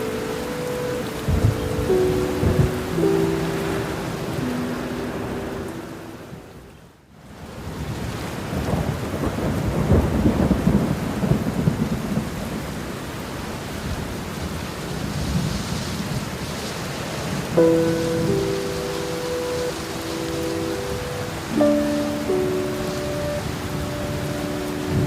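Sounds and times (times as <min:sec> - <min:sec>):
thunder rumbling: 0:00.0 - 0:06.4, 0:08.5 - 0:12.9
steady rain: 0:00.0 - 0:25.0.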